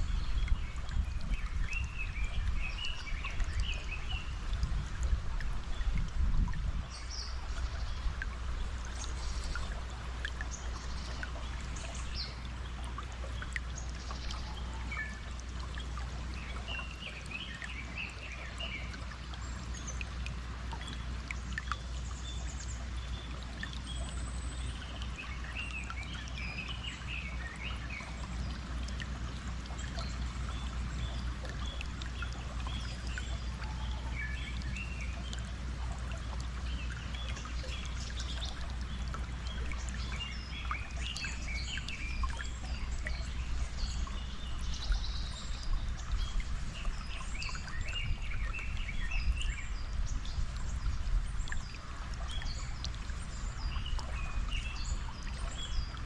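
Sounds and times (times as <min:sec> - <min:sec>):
stream water running: 0:00.0 - 0:56.0.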